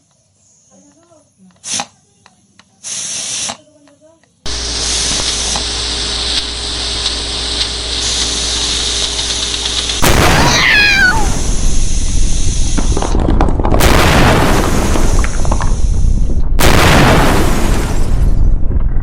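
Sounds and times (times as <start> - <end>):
pressure cooker hissing steam: 1.6 - 1.9, 2.8 - 3.6, 4.5 - 10.0, 10.7 - 13.0
loud rushing steam blast: 4.5 - 13.2, 13.8 - 18.6
cat yowling: 10.3 - 11.4.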